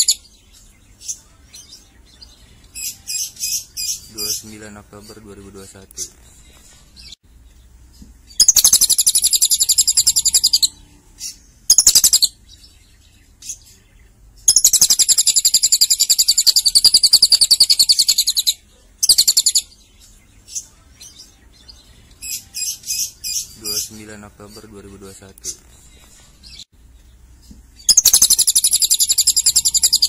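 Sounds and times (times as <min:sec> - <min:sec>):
bird chirps: 0:00.0 - 0:30.0
lovebird trilling: 0:08.4 - 0:12.4, 0:14.5 - 0:19.7, 0:27.8 - 0:30.0.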